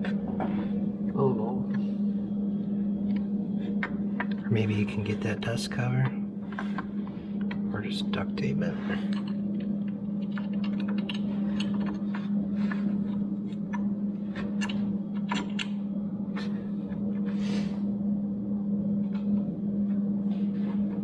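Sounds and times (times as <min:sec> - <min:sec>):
steady low hum: 0:00.0 - 0:21.0
tools and metal parts clinking: 0:08.9 - 0:15.8.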